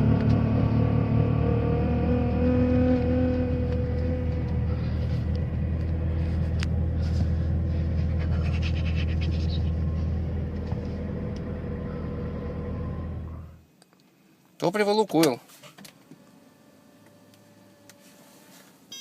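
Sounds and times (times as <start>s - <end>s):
car engine running: 0.0s - 13.6s.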